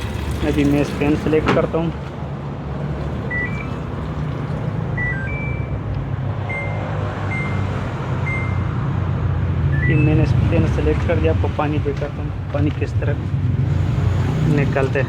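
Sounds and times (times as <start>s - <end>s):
washing machine hum: 0.0s - 10.0s
short high beeps: 3.3s - 3.7s, 5.0s - 5.8s, 6.5s - 8.8s, 9.7s - 10.2s.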